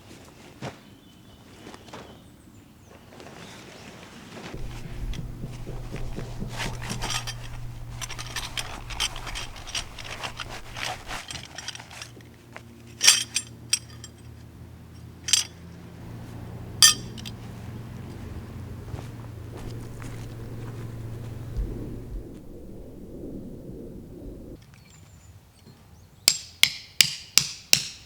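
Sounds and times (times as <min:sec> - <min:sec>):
steady low hum: 0:04.6 - 0:11.7, 0:15.2 - 0:24.6
sharp clinks: 0:04.6 - 0:12.0, 0:13.0 - 0:14.2, 0:15.2 - 0:17.6
gear scraping and rustling: 0:04.6 - 0:24.5.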